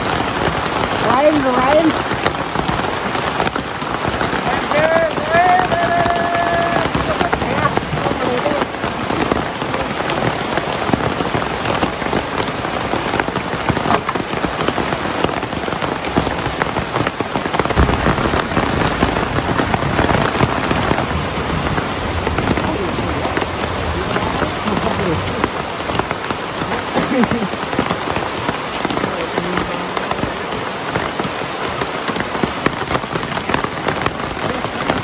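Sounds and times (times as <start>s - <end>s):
heavy rain falling: 0.0s - 35.0s
low thump: 17.7s - 22.6s.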